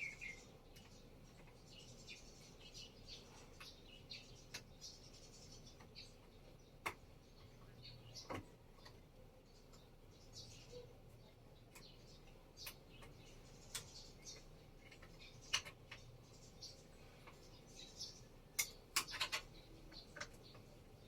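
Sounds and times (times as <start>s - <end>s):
faint high chirps: 0.0s - 0.9s
light clicks and taps: 11.7s - 16.1s.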